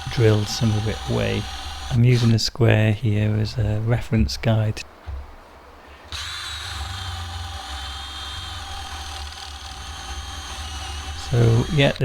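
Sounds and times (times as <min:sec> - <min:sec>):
electric drill whining: 0:00.0 - 0:02.3, 0:06.1 - 0:12.0.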